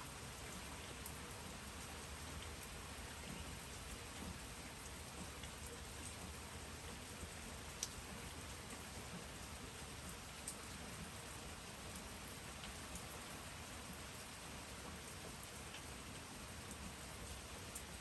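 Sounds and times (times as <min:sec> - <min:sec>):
steady rain falling: 0:00.0 - 0:18.0
faint drip ticks: 0:02.3 - 0:06.4, 0:07.2 - 0:08.0, 0:11.9 - 0:14.0, 0:15.3 - 0:15.9.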